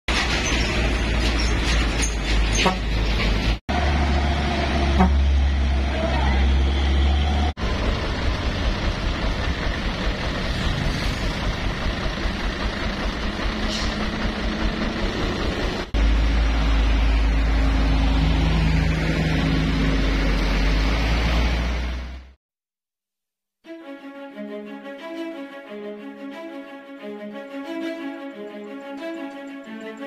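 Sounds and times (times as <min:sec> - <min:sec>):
heavy truck engines: 0:00.1 - 0:22.4
road traffic: 0:00.1 - 0:22.4.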